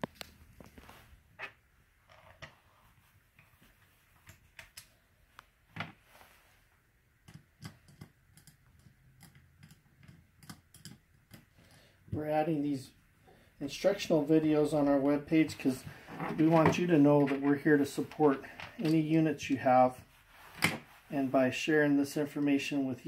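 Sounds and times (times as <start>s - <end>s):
small valve parts clicking and tapping: 7.2s - 11.8s.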